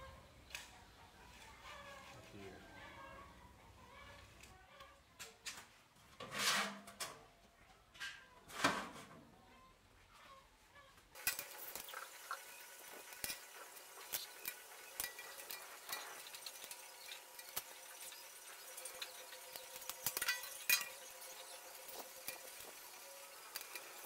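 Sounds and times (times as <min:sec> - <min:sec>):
arc welding crackling sizzle: 0:11.1 - 0:24.0.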